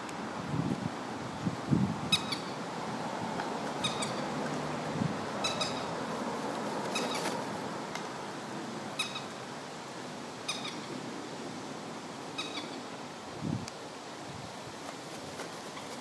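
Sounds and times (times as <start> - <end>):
steady background hiss: 0.0 - 16.0
bird calling with high notes: 12.4 - 12.8.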